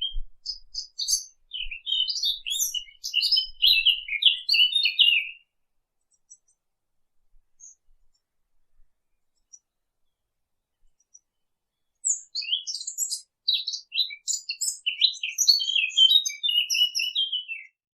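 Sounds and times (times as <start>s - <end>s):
birds chirping: 0.0s - 5.5s, 10.9s - 17.8s.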